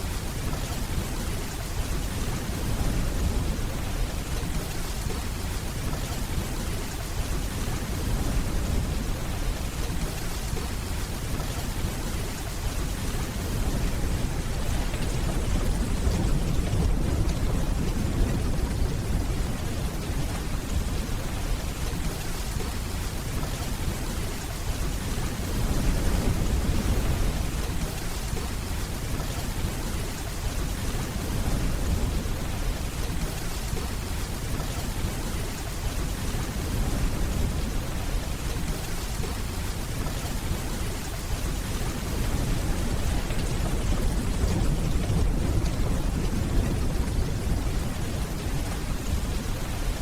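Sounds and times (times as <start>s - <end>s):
steady rainfall: 0.0s - 50.0s
distant thunder rumbling: 0.4s - 24.0s, 41.4s - 50.0s.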